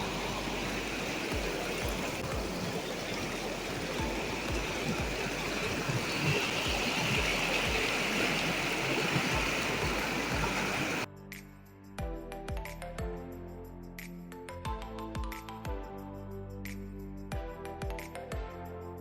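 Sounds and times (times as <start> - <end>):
soft low thumps: 0.0 - 11.0
river rushing over stones: 0.0 - 11.1.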